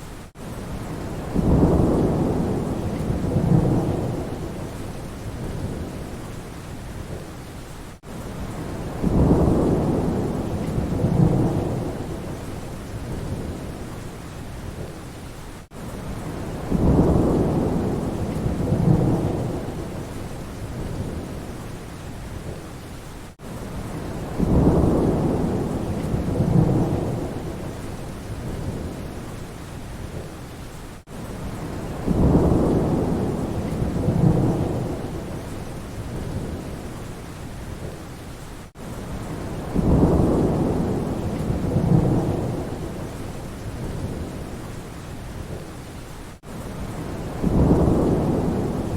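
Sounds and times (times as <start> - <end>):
steady rain: 0.0 - 48.9
thunder rumbling: 0.8 - 6.2, 8.4 - 13.8, 16.1 - 21.6, 23.8 - 29.2, 31.4 - 36.9, 39.1 - 44.6, 46.8 - 48.9.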